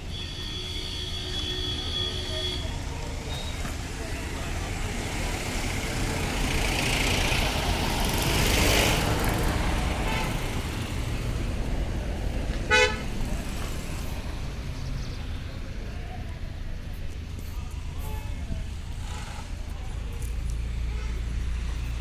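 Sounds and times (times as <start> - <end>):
vehicle horn toot: 0.0 - 2.8, 12.7 - 13.1
road traffic: 0.0 - 22.0
vehicle passing: 2.7 - 15.9.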